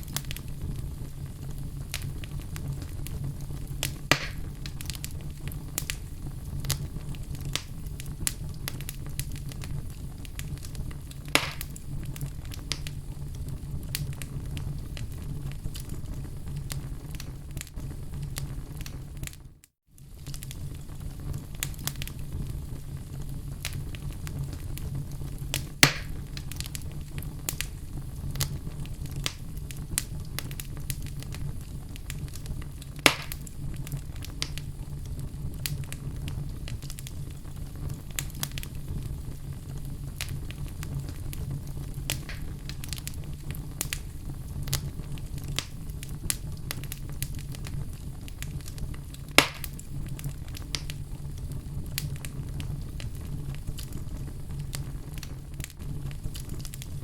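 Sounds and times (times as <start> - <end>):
sharp pops from fire: 0.0 - 19.4, 20.0 - 57.0
wood fire crackling: 0.0 - 57.0.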